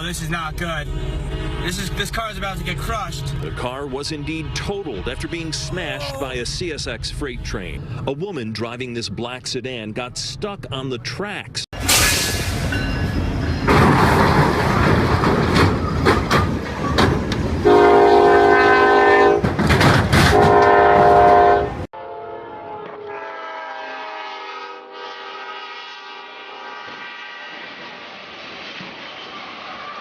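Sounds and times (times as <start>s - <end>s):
freight train rumbling past: 0.0s - 11.0s, 11.8s - 30.0s
muffled locomotive horn: 0.4s - 6.3s, 17.6s - 19.6s, 20.2s - 27.7s
train air horn blasts: 0.6s - 2.5s, 17.6s - 19.5s, 20.2s - 27.8s.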